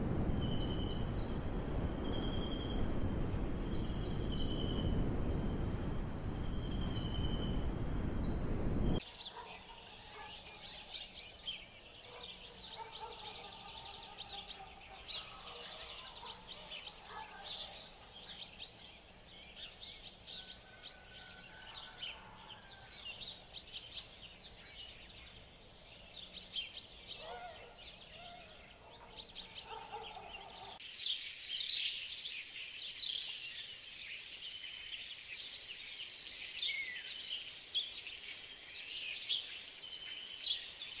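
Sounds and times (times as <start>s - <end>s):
high insect drone: 0.0s - 9.0s
bird calls and chirps: 0.0s - 41.0s.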